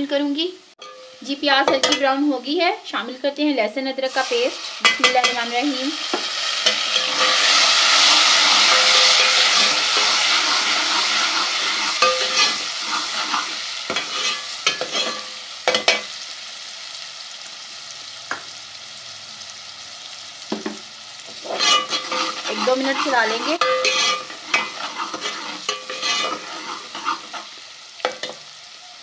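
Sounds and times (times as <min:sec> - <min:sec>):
onions sizzling in hot fat: 0:00.0 - 0:29.0
spoon scraping and knocking pan: 0:00.8 - 0:02.2, 0:04.8 - 0:16.1, 0:20.5 - 0:28.4.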